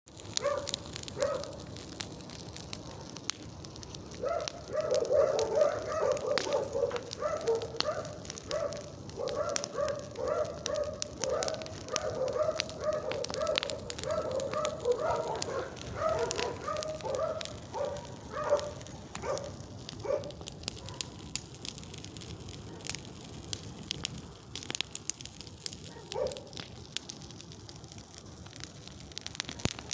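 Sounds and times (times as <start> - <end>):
bonfire crackling and popping: 0.1 - 29.9
dog barking: 0.4 - 1.6, 4.2 - 21.2, 22.6 - 23.0, 25.9 - 26.6.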